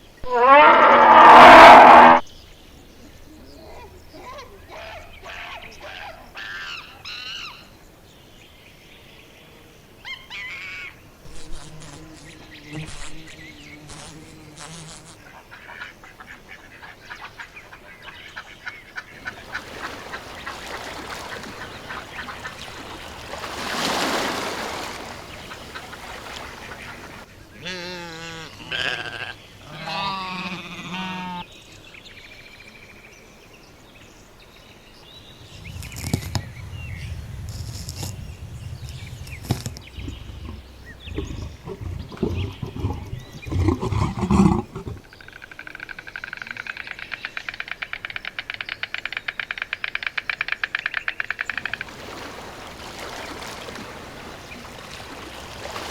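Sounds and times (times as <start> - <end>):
animal and bird calls: 0.0 - 2.3, 3.0 - 7.7, 10.0 - 31.5, 35.2 - 55.9
low rumbling with clicks: 35.5 - 43.7.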